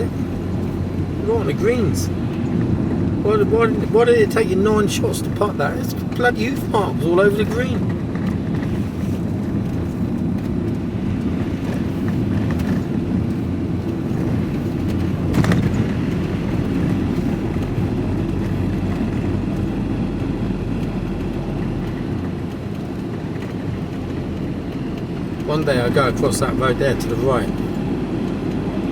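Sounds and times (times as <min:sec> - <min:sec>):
vehicle engine and road rumble: 0:00.0 - 0:28.9.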